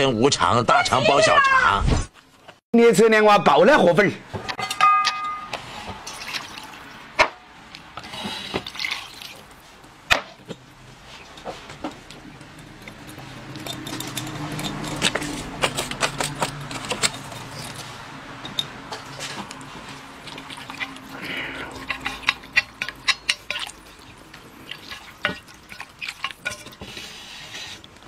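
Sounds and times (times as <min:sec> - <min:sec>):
wet eating sounds: 0:05.9 - 0:07.1, 0:07.7 - 0:28.0.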